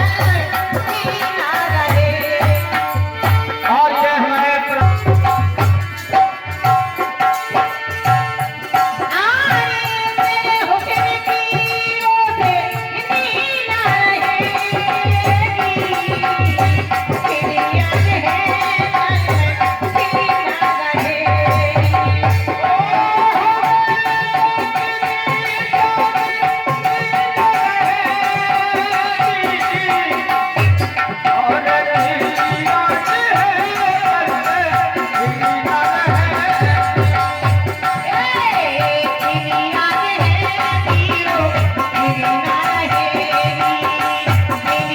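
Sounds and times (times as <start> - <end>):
hand drum rhythm: 0.0 - 44.9.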